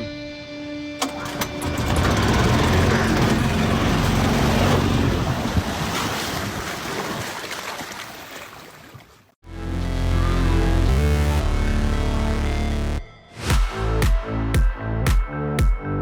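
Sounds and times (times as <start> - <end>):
rushing water around a boat: 2.2 - 9.4
wind buffeting microphone: 3.1 - 6.7.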